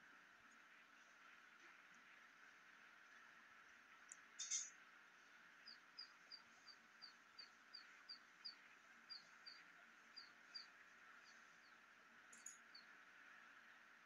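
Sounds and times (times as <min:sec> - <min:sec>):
small bird chirping: 0:04.1 - 0:04.8, 0:05.6 - 0:13.0.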